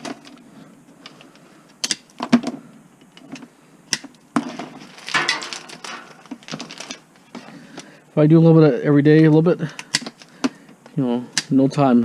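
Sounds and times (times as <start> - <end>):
wire clicks and snaps: 1.0 - 2.4, 3.0 - 4.2, 9.8 - 10.3
wire scraping rustle: 4.4 - 7.9.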